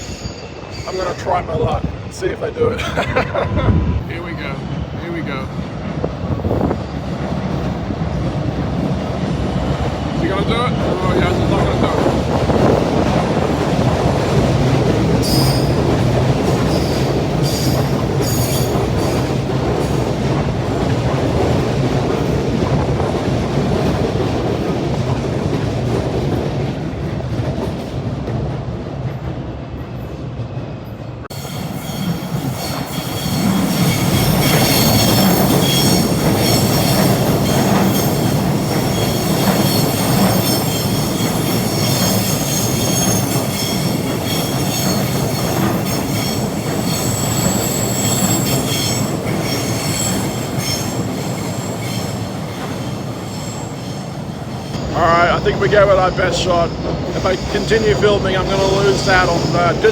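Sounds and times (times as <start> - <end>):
train wheels on rails: 0.0 - 59.9
high-pitched wheel squeal: 15.2 - 15.8, 31.3 - 52.2, 52.8 - 54.1.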